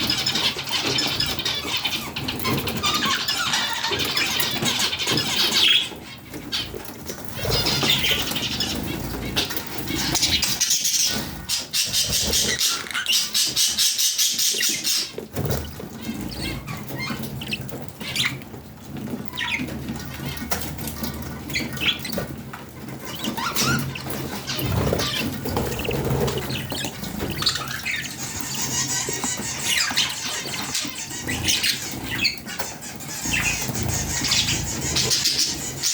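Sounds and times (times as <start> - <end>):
parrots chirping and squawking: 0.0 - 35.9
wings fluttering: 6.4 - 18.4, 19.2 - 35.9.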